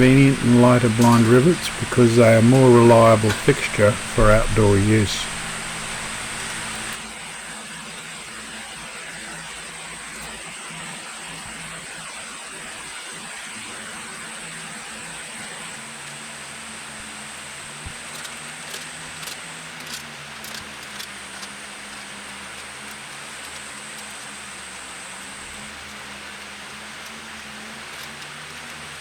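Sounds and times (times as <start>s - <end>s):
steady hiss and low hum: 0.0s - 7.0s.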